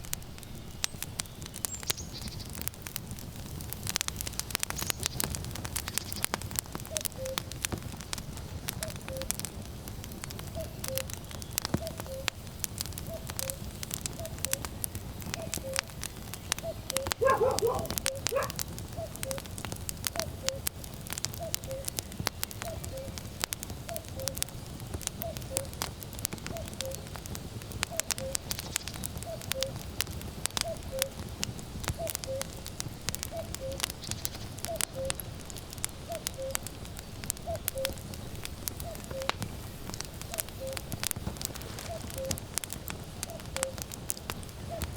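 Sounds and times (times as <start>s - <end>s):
wood fire crackling and popping: 0.0s - 44.9s
cuckoo calling: 6.9s - 7.5s, 8.8s - 9.3s, 10.6s - 11.1s, 11.8s - 12.4s, 14.2s - 14.6s, 15.3s - 19.5s, 21.4s - 22.0s, 22.6s - 23.2s, 25.2s - 25.8s, 27.9s - 29.8s, 30.6s - 31.2s, 32.0s - 32.6s, 33.3s - 35.3s, 36.1s - 36.7s, 37.4s - 38.0s, 38.8s - 39.4s, 40.3s - 40.9s, 41.8s - 42.4s, 43.3s - 43.8s.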